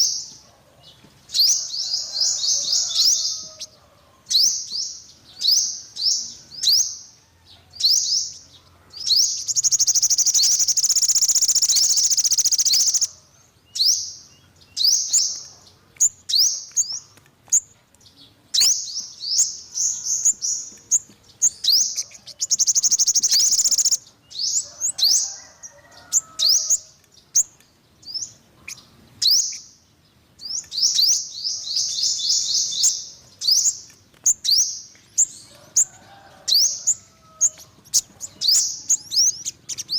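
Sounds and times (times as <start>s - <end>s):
bird chirps and trills: 7.7s - 25.2s, 26.0s - 35.9s.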